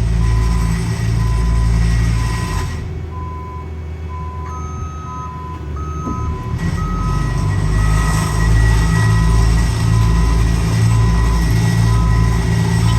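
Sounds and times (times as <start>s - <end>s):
diesel engines rumbling: 0.0s - 12.9s
reversing alarm beeping: 0.0s - 12.9s
higher-pitched reversing beeper: 4.4s - 12.9s.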